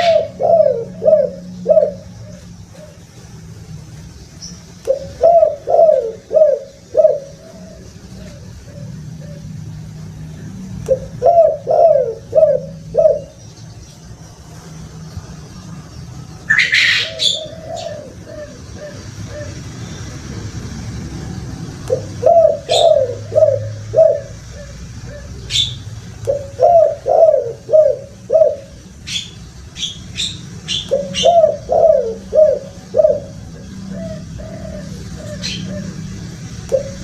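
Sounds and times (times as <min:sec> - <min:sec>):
dove cooing: 0:00.0 - 0:03.4, 0:04.8 - 0:13.4, 0:16.4 - 0:19.9, 0:21.3 - 0:37.0
small birds chirping: 0:00.0 - 0:37.0.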